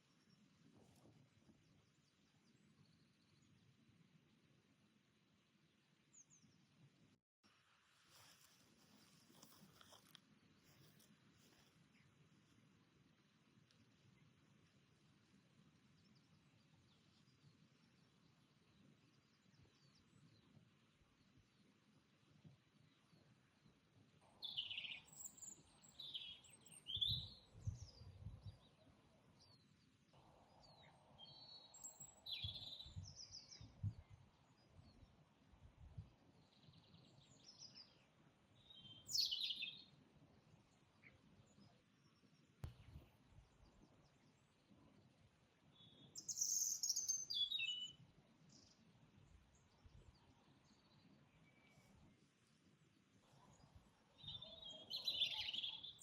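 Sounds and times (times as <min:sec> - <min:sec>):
songbirds chirping and singing: 0:24.3 - 0:29.9, 0:43.6 - 0:48.9, 0:53.4 - 0:56.0
faint bird chirps: 0:24.3 - 0:35.2, 0:35.9 - 0:40.0, 0:45.7 - 0:52.6, 0:53.2 - 0:56.0.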